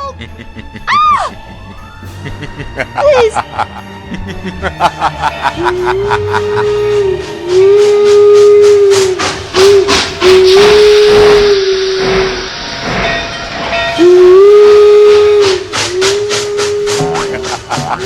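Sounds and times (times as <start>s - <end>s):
rhythmic train chuffing: 0.0s - 18.0s
steam hiss: 4.9s - 18.0s
steam whistle toots: 5.5s - 18.0s.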